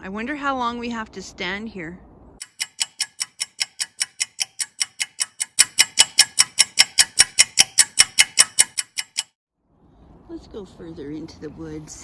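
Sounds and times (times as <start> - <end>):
clock ticking: 2.4 - 9.4.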